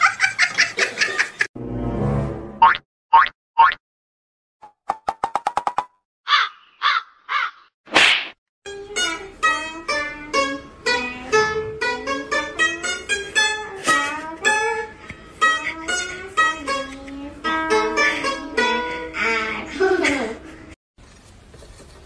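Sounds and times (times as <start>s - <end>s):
plucked lute melody: 8.7s - 20.5s.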